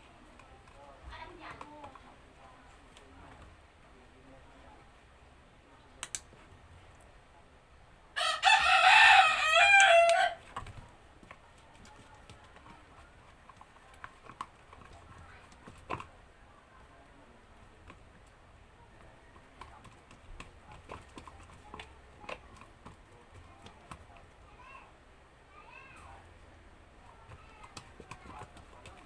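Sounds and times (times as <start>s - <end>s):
faint clicks and taps: 0.0s - 5.0s, 6.0s - 7.2s, 9.7s - 25.0s, 25.8s - 29.0s
rooster crowing: 8.2s - 10.4s.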